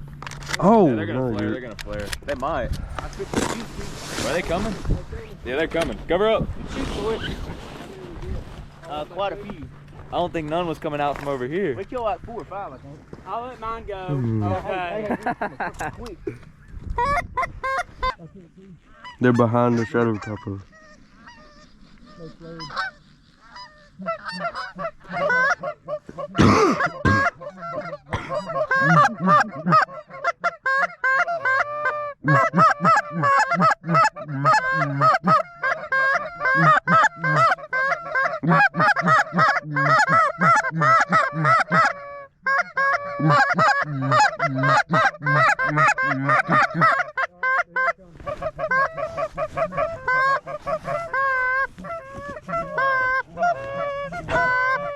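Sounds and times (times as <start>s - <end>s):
geese honking: 17.0s - 54.9s.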